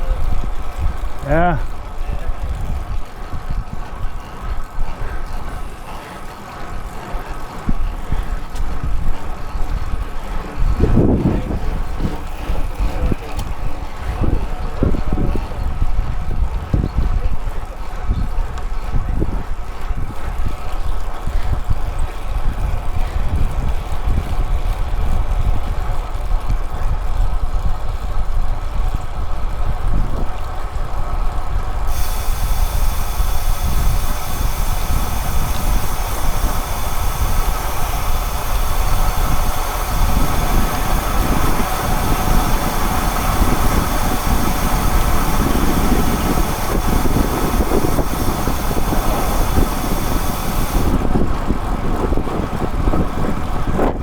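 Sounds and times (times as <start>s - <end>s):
wind buffeting microphone: 0.0s - 5.9s, 6.5s - 54.0s
steady high hiss: 31.9s - 51.0s.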